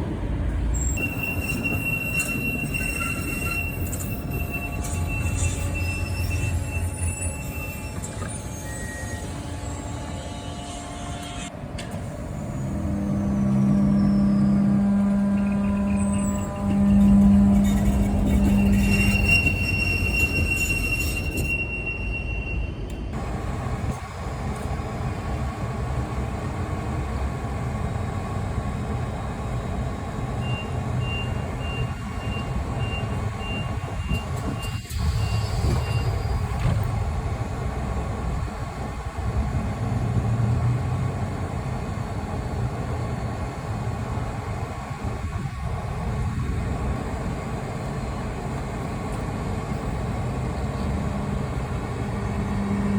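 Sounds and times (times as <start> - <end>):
tram low rumble: 0.0 - 52.9
high warning tone: 12.5 - 22.8.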